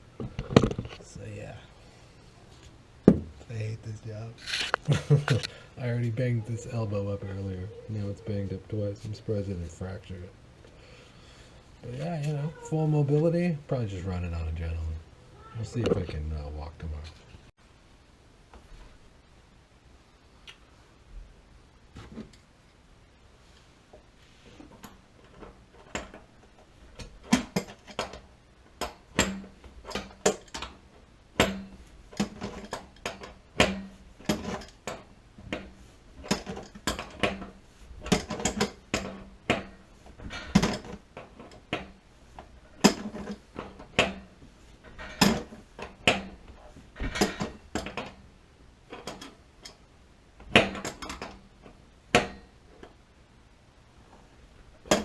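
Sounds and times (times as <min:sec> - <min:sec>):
metal clinks and knocks: 0:31.4 - 0:41.9.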